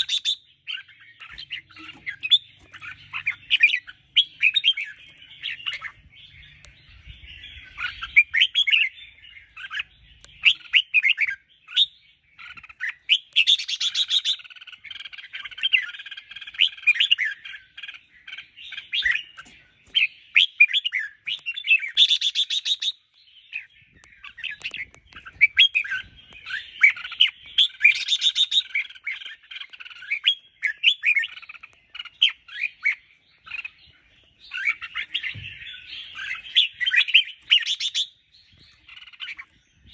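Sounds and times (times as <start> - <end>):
bulbuls chirping: 0.0 - 39.9.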